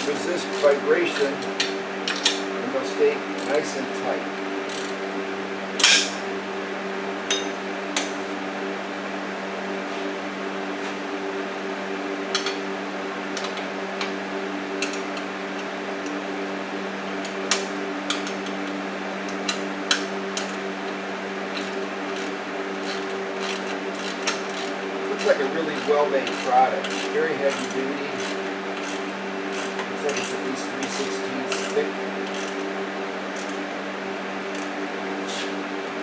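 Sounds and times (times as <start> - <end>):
wrench metallic clicks: 0.0 - 1.7, 3.4 - 3.8, 4.7 - 5.0, 21.6 - 32.7, 33.3 - 33.6, 35.3 - 35.5
steady background hum: 0.0 - 36.0.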